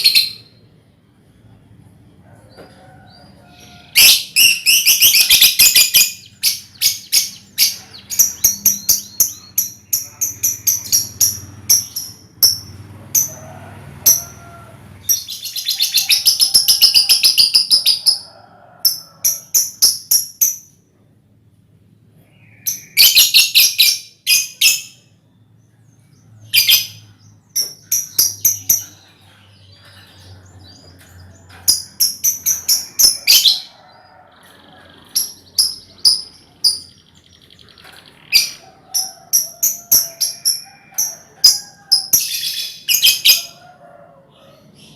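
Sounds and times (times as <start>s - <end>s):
young lovebirds chirping: 3.1s - 13.4s, 14.0s - 18.3s, 22.4s - 25.0s, 26.4s - 43.6s
dense bird chattering: 3.7s - 13.3s, 26.4s - 40.6s.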